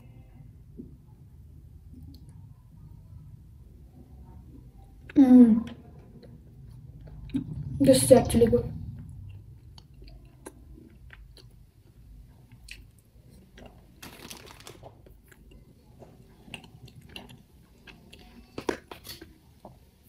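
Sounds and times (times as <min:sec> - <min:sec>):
person chewing cake: 0:08.9 - 0:19.8.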